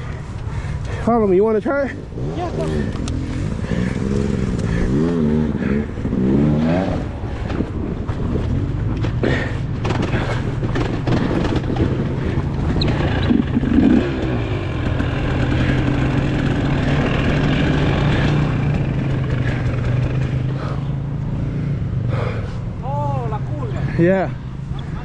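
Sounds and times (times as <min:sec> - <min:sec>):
dirt bike engine running: 0:01.1 - 0:22.4
clatter: 0:07.3 - 0:20.9.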